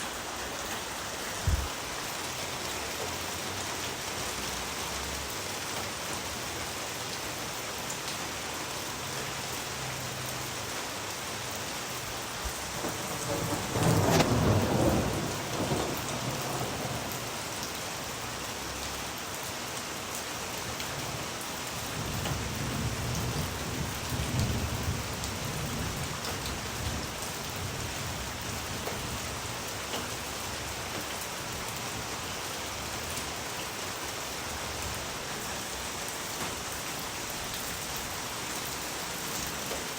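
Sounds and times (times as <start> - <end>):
steady rain falling: 0.0 - 39.9
thunder rumbling: 12.3 - 17.8.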